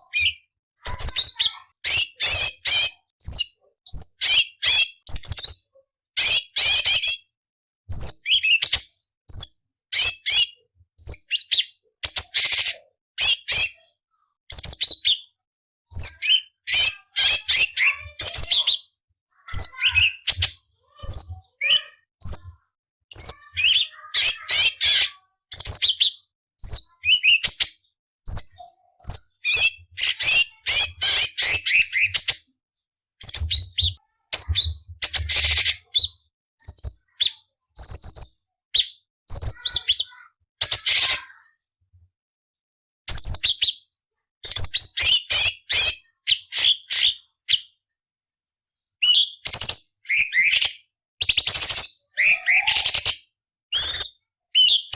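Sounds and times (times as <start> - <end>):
bird singing chirps and trills: 7.9 - 32.5, 33.2 - 41.2, 49.0 - 54.9.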